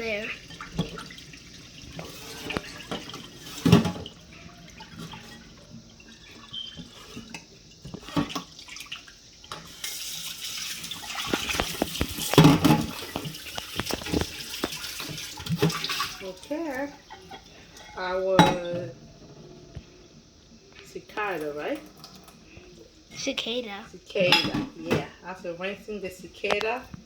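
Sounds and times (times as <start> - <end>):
tap running: 0.0 - 5.6, 9.5 - 17.4
water sloshing: 10.4 - 19.6.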